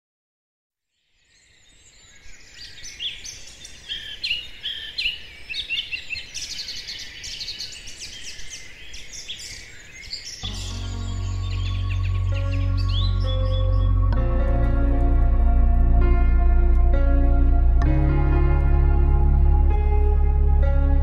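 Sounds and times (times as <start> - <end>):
birds chirping and singing: 1.2 - 17.8.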